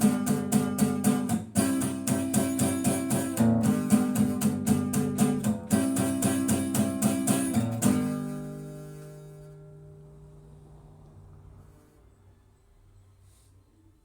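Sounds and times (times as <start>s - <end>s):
guitar strumming: 0.0s - 11.1s.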